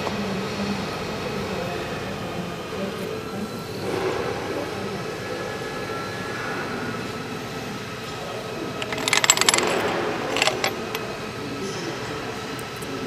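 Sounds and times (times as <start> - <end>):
machinery humming: 0.0 - 13.0
metallic clinks: 8.8 - 11.2.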